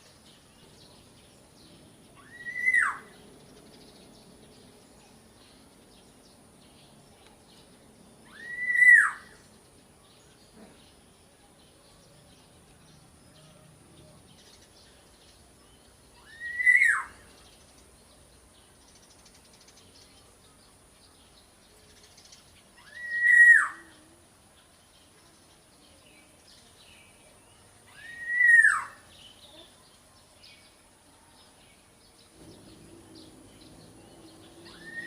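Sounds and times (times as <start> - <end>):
bird whistled call: 2.2 - 3.2, 8.2 - 9.4, 16.2 - 17.3, 22.8 - 23.9, 27.9 - 29.1, 34.4 - 35.0.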